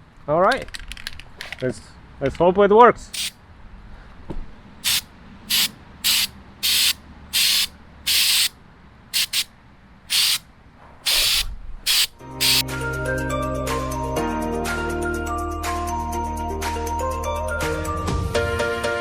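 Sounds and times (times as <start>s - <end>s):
aerosol spray bursts: 3.2s - 3.4s, 4.8s - 8.5s, 9.2s - 9.5s, 10.1s - 10.4s, 11.1s - 12.6s.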